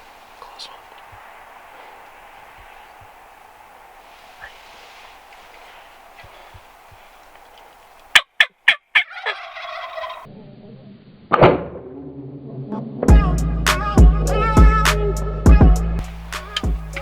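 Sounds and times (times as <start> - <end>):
turkeys gobbling: 4.4 - 10.8, 16.0 - 17.0
music: 13.1 - 17.0.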